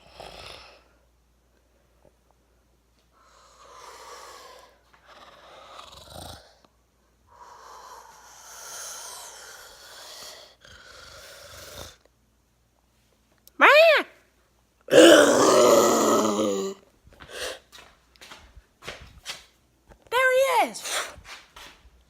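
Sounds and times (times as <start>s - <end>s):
person snoring: 3.3s - 6.6s, 7.3s - 12.0s, 14.9s - 16.8s.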